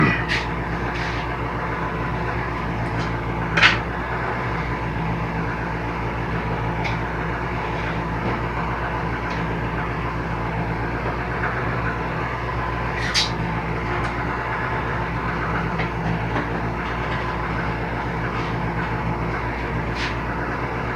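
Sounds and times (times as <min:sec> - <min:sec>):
steady mechanical hum: 0:00.0 - 0:20.9.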